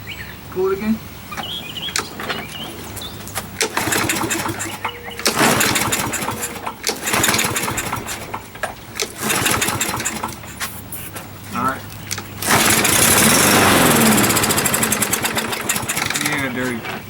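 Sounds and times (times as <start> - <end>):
lawnmower engine running: 1.2 - 17.0
recoil cord pull: 12.4 - 16.5.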